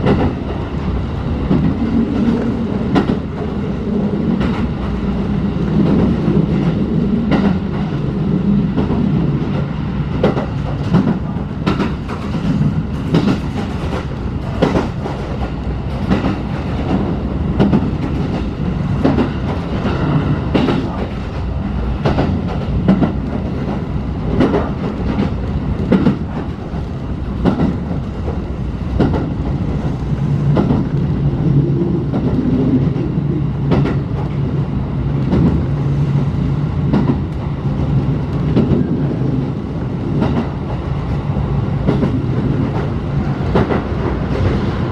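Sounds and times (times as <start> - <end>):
train running gear rumble: 0.0 - 44.9
wheels clacking over rail joints: 8.8 - 31.1.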